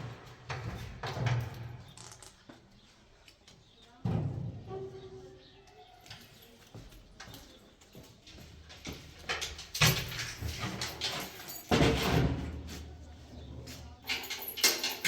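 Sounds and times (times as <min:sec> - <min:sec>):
knocks scrapes and clattering: 0:09.3 - 0:15.0.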